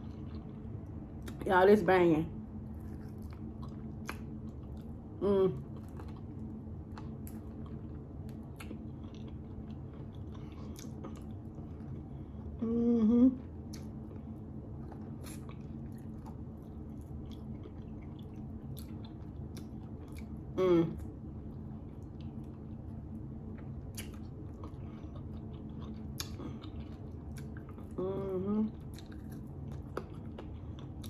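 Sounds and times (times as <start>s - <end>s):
steady low hum: 0.0s - 31.0s
chewing and biting: 2.6s - 5.0s, 5.6s - 12.1s, 13.6s - 20.4s, 21.0s - 28.0s, 28.7s - 31.0s
wet mouth clicks and smacks: 23.9s - 24.2s.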